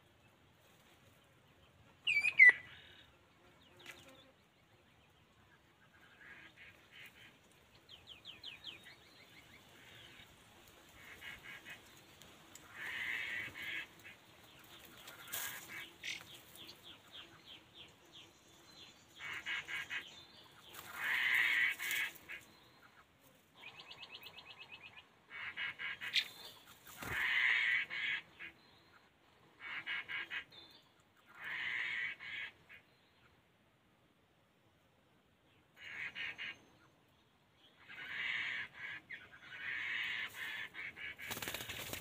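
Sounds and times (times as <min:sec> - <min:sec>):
songbirds harsh chattering: 0:05.8 - 0:32.9, 0:37.6 - 0:42.0.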